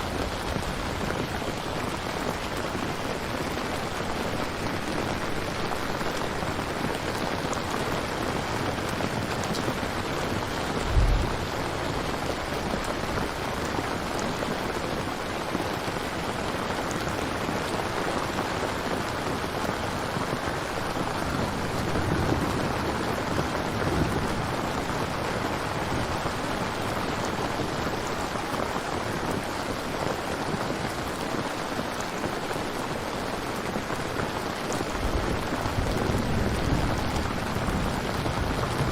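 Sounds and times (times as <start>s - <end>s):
rain falling: 0.0s - 38.9s
soft low rumble: 10.8s - 11.8s
short low thump: 10.8s - 12.0s.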